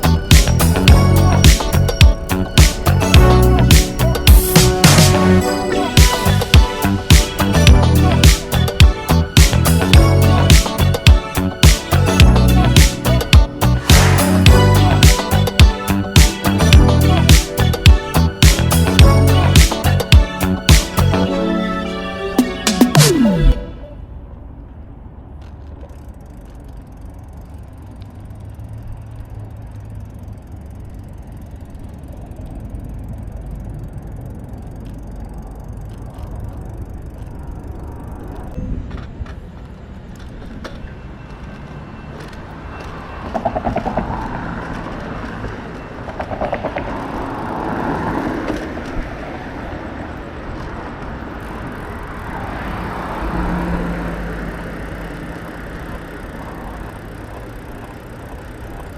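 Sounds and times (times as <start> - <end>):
low rumble: 0.0 - 5.5
street traffic: 0.0 - 58.9
vehicles passing: 0.0 - 58.9.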